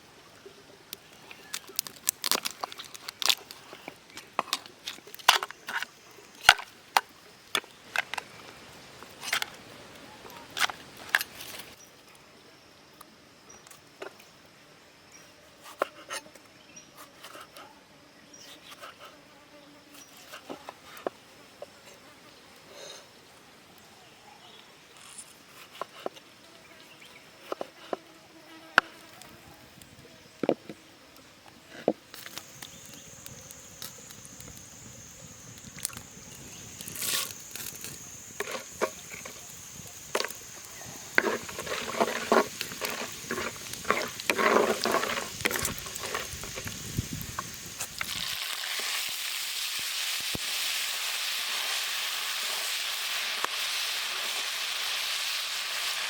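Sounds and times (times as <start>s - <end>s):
high insect buzz: 14.9s - 23.3s, 25.0s - 56.0s
food frying in hot oil: 32.2s - 56.0s.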